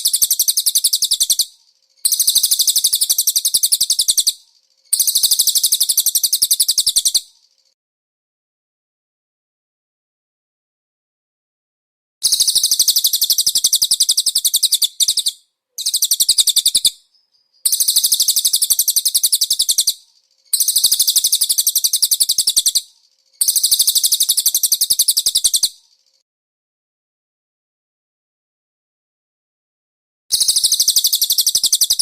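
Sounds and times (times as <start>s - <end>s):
bird trilling: 0.0s - 4.4s, 12.2s - 17.0s, 17.6s - 20.0s, 20.6s - 25.8s.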